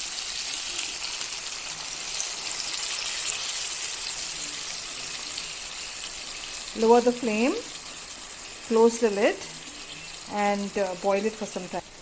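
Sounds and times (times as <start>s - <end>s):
water hissing in hot pan: 0.0s - 12.0s.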